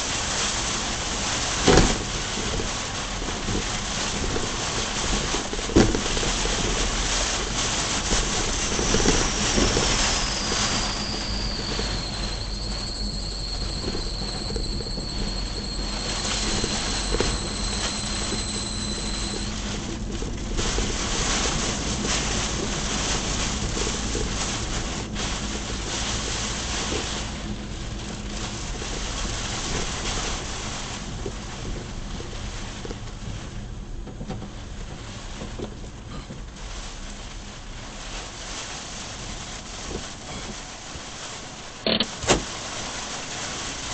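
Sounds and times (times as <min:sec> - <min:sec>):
wind buffeting microphone: 0:00.0 - 0:36.6
low rumble: 0:00.0 - 0:40.8
heavy rain: 0:00.0 - 0:43.9
thin high whine: 0:03.3 - 0:32.9.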